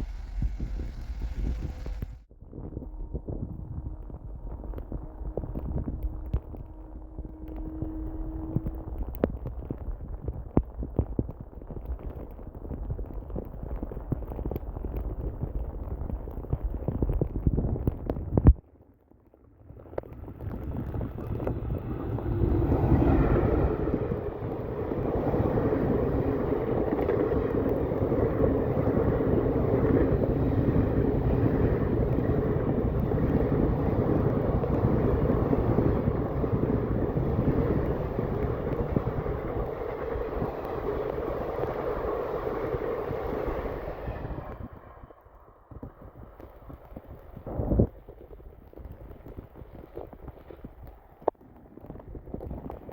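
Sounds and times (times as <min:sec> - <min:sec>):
train wheels rumbling on track: 0:00.0 - 0:02.3, 0:19.8 - 0:47.4.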